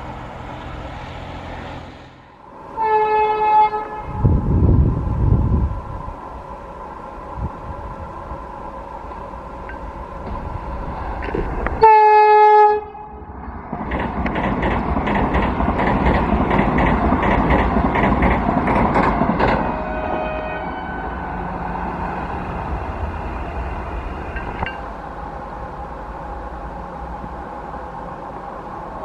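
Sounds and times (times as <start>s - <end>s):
train horn blast: 2.7s - 4.4s, 11.8s - 13.2s, 19.6s - 21.5s
train wheels clattering: 13.7s - 20.0s.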